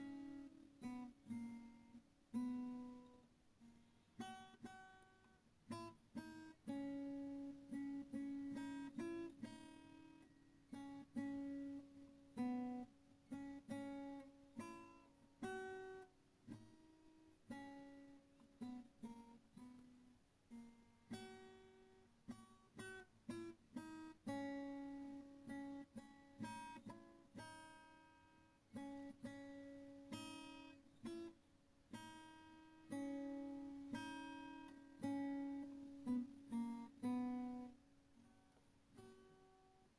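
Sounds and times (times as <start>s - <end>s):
acoustic guitar plucked and strummed: 0.0s - 39.9s.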